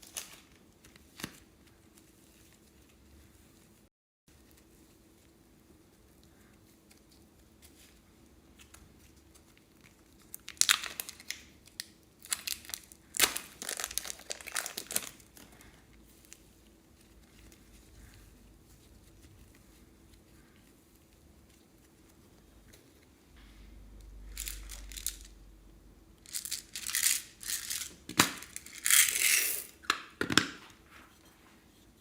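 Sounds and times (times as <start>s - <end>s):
plastic crinkling: 6.8s - 23.1s.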